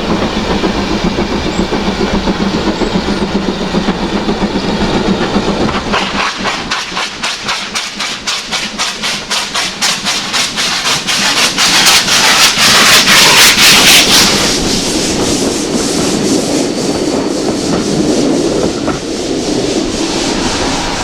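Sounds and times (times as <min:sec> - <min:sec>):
steam locomotive exhaust beats: 0:00.0 - 0:21.0
train rumbling by: 0:00.0 - 0:21.0.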